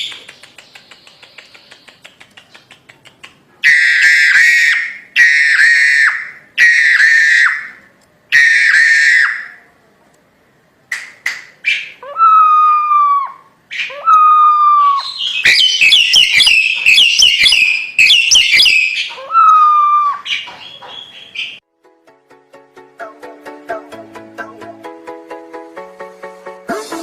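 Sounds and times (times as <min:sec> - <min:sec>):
myna bird singing: 0:00.0 - 0:04.0, 0:13.7 - 0:21.6.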